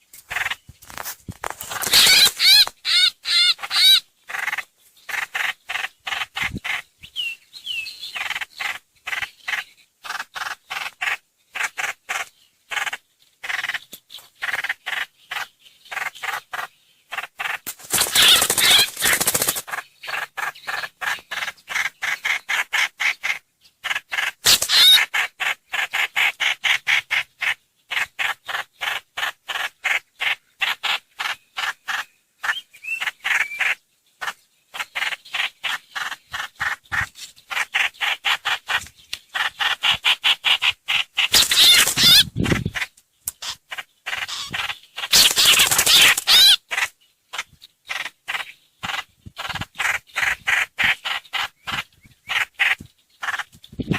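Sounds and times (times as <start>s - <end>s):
bird chattering calls: 0.3s - 0.7s, 1.6s - 53.9s
harsh raspy bird bursts: 1.8s - 6.8s, 17.1s - 20.5s, 22.8s - 27.2s, 39.5s - 46.8s.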